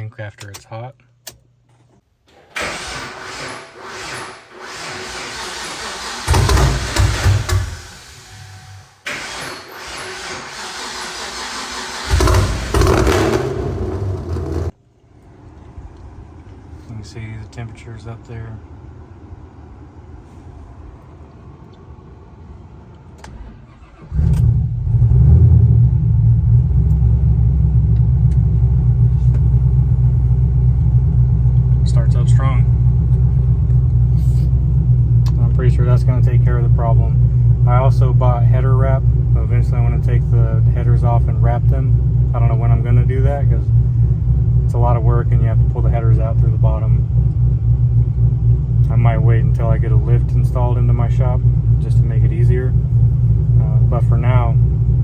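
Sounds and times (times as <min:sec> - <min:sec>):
engine cranking: 0:02.3 - 0:14.8
car engine firing loudly: 0:02.6 - 0:14.8, 0:23.8 - 0:55.0.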